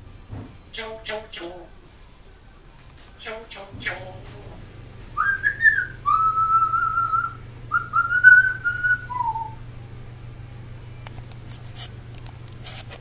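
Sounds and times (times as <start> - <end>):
parrot whistling a tune: 5.2 - 9.6.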